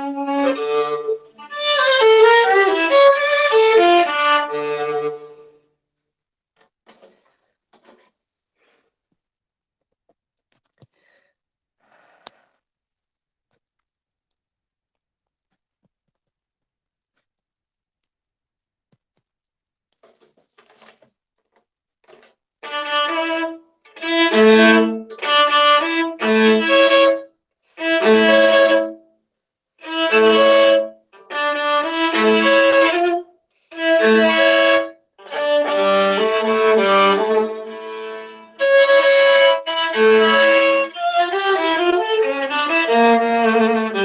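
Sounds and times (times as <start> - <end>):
bowed viola phrases: 0.0 - 5.6, 22.6 - 29.0, 29.8 - 44.0.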